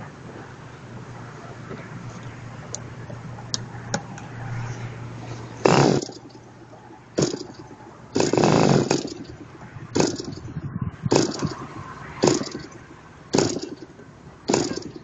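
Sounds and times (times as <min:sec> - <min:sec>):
model engine bursts: 0:05.6 - 0:06.4, 0:07.2 - 0:15.0.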